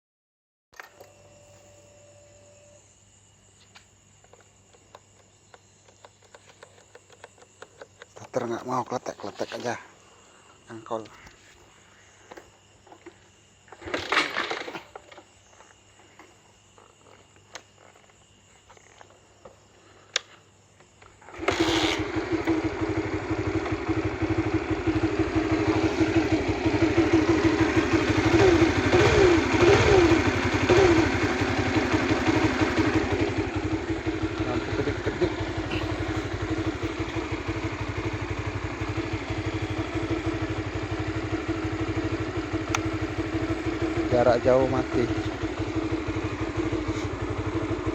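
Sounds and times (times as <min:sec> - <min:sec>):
motorcycle engine revving and idling: 0:21.2 - 0:47.9.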